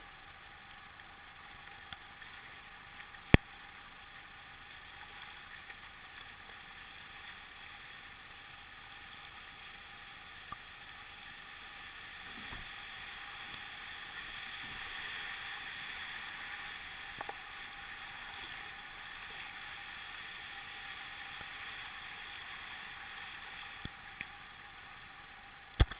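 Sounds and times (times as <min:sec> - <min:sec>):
faint clicks: 0:00.3 - 0:07.4, 0:10.4 - 0:10.9, 0:16.6 - 0:19.5, 0:23.7 - 0:24.5.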